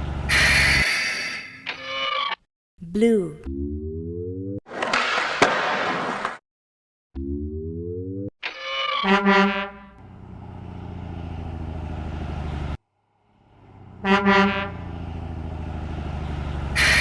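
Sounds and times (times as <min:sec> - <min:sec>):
truck engine rumble: 0:00.0 - 0:00.8, 0:09.8 - 0:17.0
truck horn honk: 0:09.0 - 0:10.0, 0:13.8 - 0:15.0, 0:16.7 - 0:17.0.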